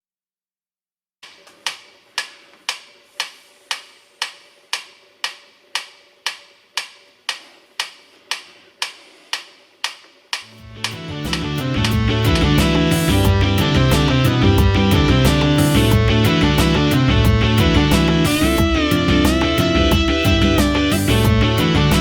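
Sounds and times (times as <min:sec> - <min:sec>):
metronome clicking: 0:09.8 - 0:16.0
band with electric guitar and drums: 0:10.7 - 0:22.0.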